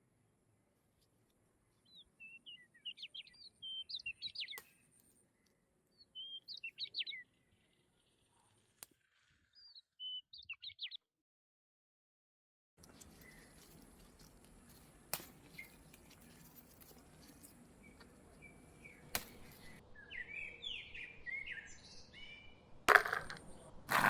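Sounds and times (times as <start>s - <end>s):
faint outdoor background: 0.0s - 11.1s, 12.8s - 24.0s
small birds chirping: 1.0s - 8.8s, 9.4s - 11.0s, 12.8s - 22.6s.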